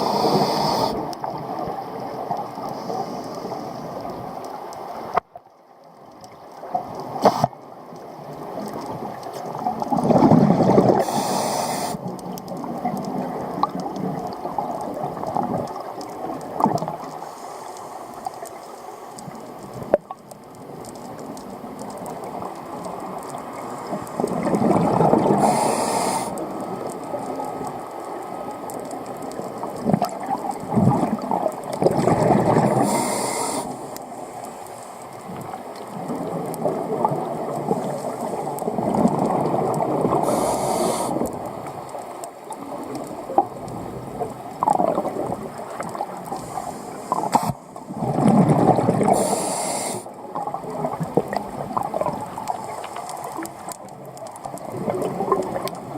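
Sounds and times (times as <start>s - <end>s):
regulator hiss: 0.0s - 1.0s, 11.0s - 12.0s, 25.4s - 26.4s, 32.8s - 34.3s, 40.2s - 41.2s, 49.1s - 50.1s
underwater wash: 0.0s - 55.9s.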